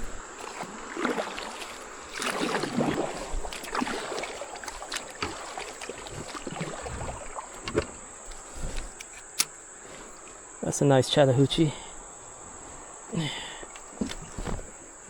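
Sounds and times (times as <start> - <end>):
water splashing around kayak: 0.0 - 10.6, 11.9 - 15.0
light knocks and rustles: 13.8 - 14.8.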